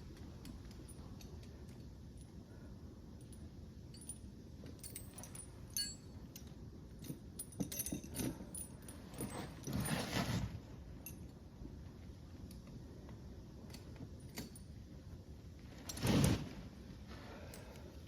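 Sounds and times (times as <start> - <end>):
metallic clinking and jingling: 3.2 - 9.7
rustling: 8.2 - 10.7.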